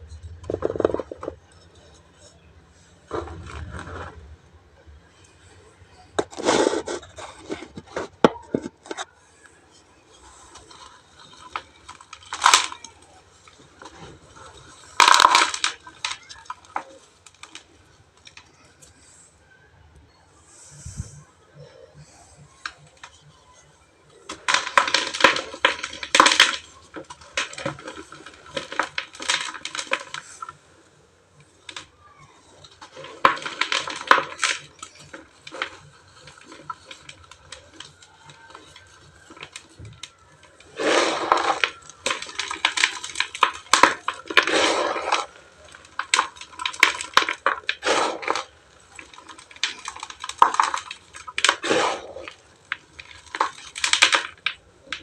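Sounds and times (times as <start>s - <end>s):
cement chunks crunching: 0.0s - 19.1s, 22.4s - 55.0s.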